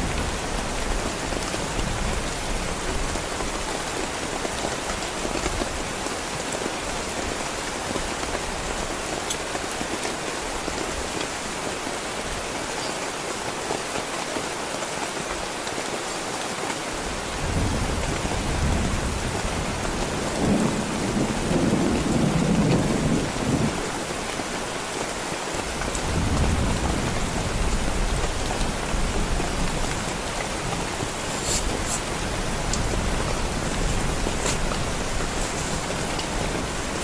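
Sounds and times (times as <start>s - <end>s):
heavy rain falling: 0.0s - 37.0s
thunder rumbling: 17.4s - 24.0s, 25.8s - 37.0s.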